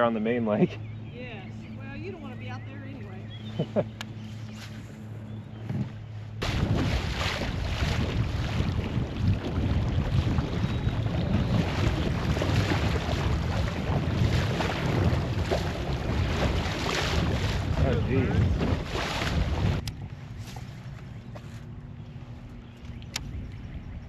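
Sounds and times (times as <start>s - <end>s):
wind buffeting microphone: 5.0s - 20.7s, 22.0s - 24.0s
water splashing: 6.4s - 19.9s.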